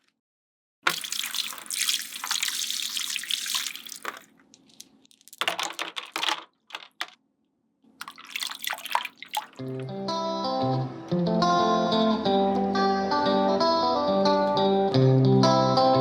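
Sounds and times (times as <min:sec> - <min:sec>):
water splashing into a tank: 0:00.9 - 0:07.0, 0:08.0 - 0:09.8.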